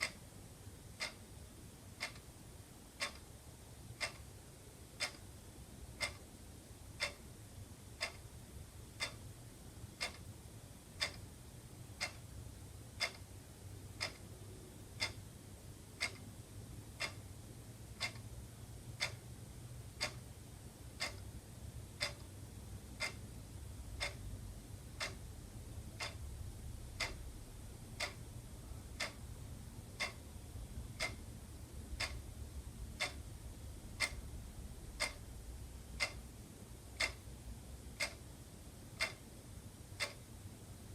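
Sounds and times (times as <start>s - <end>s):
faint low hum: 0.0s - 40.9s
wall clock ticking: 0.0s - 40.9s.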